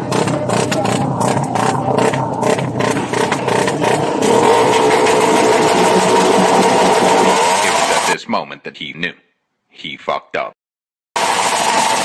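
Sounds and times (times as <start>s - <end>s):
motorcycle engine revving: 0.0s - 8.1s.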